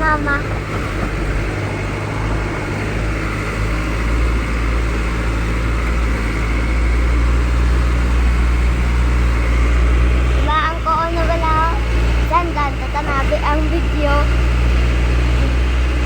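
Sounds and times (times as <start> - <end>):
truck engine and road noise: 0.0 - 16.0.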